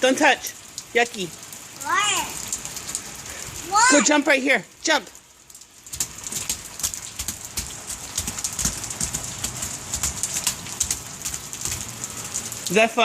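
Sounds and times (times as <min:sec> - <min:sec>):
rain falling: 0:00.0 - 0:13.0
shoes splashing in a puddle: 0:05.9 - 0:11.9.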